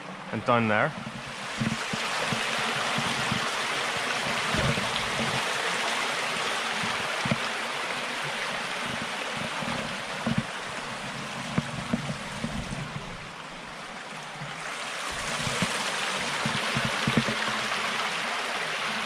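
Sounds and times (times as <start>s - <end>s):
stream rushing over rocks: 0.0s - 19.0s
soft low knocks: 0.9s - 5.4s, 8.8s - 14.6s, 15.2s - 17.6s.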